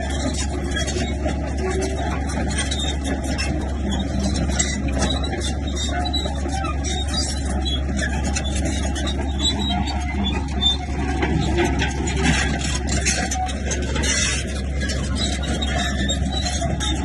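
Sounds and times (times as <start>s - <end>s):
bulldozer engine rumble: 0.0s - 17.0s
rattling and scraping: 0.0s - 17.0s.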